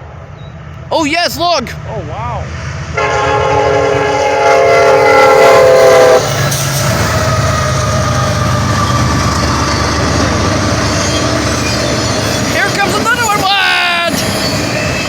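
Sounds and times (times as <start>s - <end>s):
train rumble and wheel clatter: 0.0s - 15.0s
train air horn chord: 3.0s - 6.3s.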